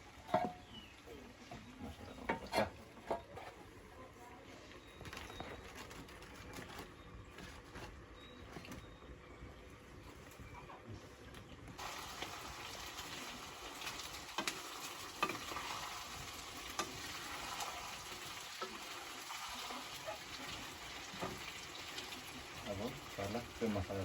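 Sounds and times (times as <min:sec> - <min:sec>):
food sizzling in a pan: 0:11.8 - 0:24.0.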